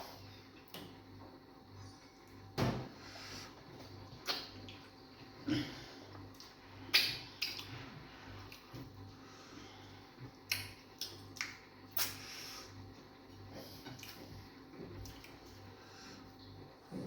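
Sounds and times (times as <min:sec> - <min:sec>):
faint low hum: 0:00.0 - 0:17.0
wet mouth clicks and smacks: 0:06.4 - 0:07.7, 0:10.5 - 0:12.2.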